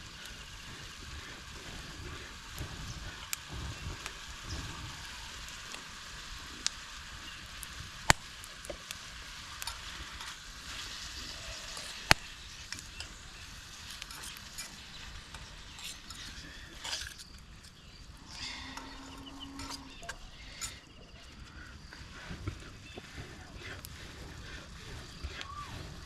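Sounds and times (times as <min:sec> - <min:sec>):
sharp fire pops: 0:00.0 - 0:17.7
food sizzling over campfire: 0:00.0 - 0:26.0.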